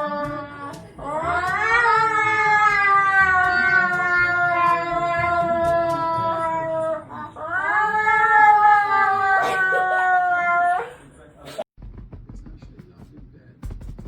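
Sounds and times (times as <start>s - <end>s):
cat yowling: 0.0s - 11.0s.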